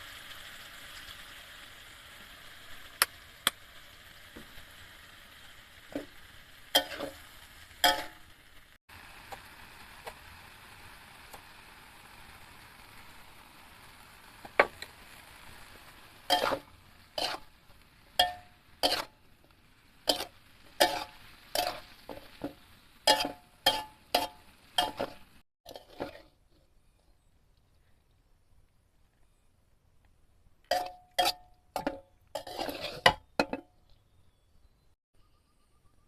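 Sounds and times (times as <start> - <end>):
continuous hiss: 0.0 - 34.6
metal utensil scraping cooking pan: 5.8 - 8.3, 14.4 - 26.6, 30.7 - 33.7.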